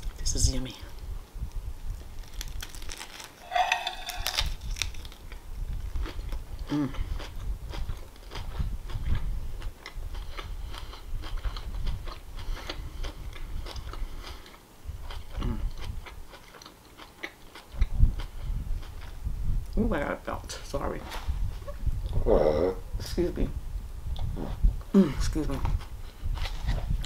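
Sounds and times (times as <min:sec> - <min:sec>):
crunchy bite into sandwich: 0:02.2 - 0:05.3
chewing with wet mouth clicks: 0:02.6 - 0:19.1
person humming mmm: 0:06.7 - 0:07.1, 0:22.2 - 0:22.8.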